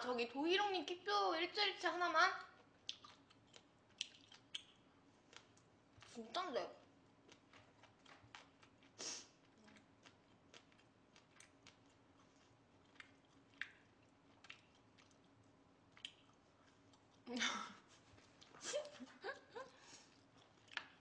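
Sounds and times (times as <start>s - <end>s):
person chewing wet mouth clicks: 2.6s - 6.1s, 7.3s - 17.2s, 20.2s - 21.0s.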